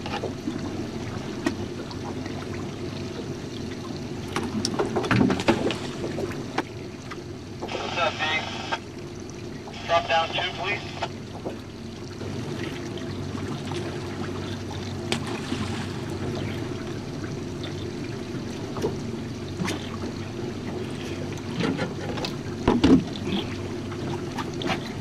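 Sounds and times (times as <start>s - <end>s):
outboard motor droning: 0.0s - 25.0s
water splashing against hull: 0.0s - 25.0s.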